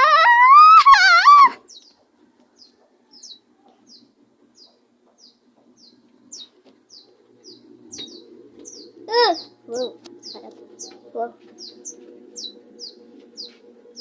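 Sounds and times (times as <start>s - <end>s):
small bird chirping: 1.7s - 14.0s.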